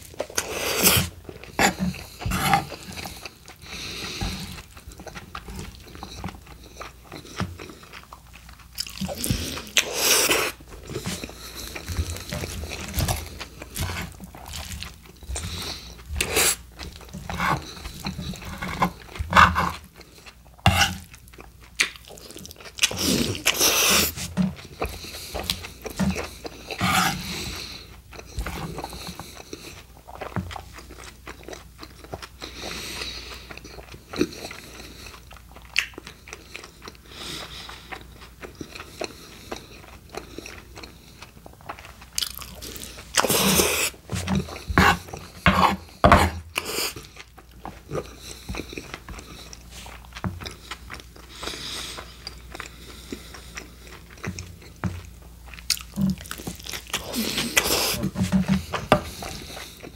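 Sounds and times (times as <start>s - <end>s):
close chewing mouth sounds: 0.0s - 59.9s.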